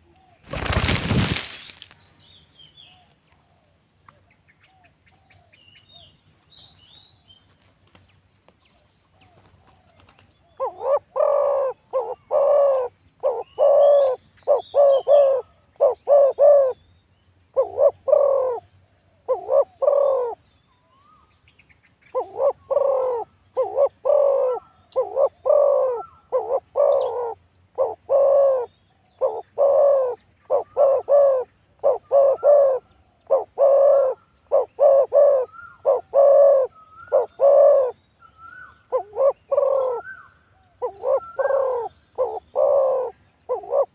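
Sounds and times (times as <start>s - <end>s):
small birds chirping: 1.5s - 43.9s
doves cooing: 9.2s - 16.8s, 17.5s - 20.4s, 22.1s - 43.9s.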